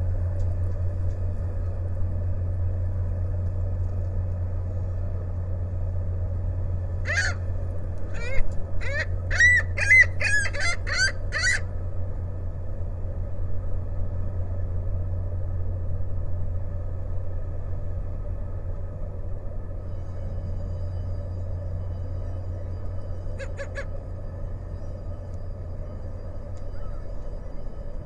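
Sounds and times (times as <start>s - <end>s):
steady low rumble: 0.0s - 28.0s
gulls calling: 7.0s - 11.7s, 21.9s - 27.4s.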